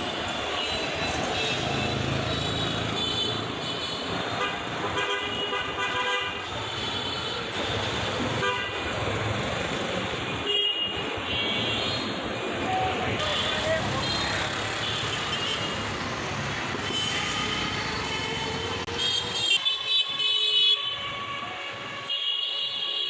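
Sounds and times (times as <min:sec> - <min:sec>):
vehicles driving past: 0:00.0 - 0:04.9, 0:12.2 - 0:19.7
car horns honking: 0:13.2 - 0:16.0, 0:16.7 - 0:20.9.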